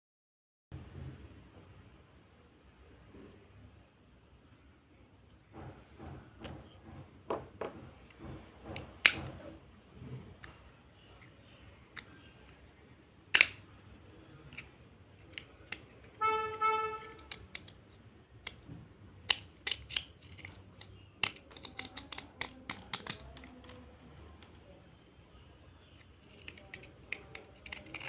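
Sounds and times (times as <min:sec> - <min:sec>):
slate crunching and snapping: 0:13.3 - 0:13.8, 0:14.4 - 0:24.6, 0:26.0 - 0:28.0.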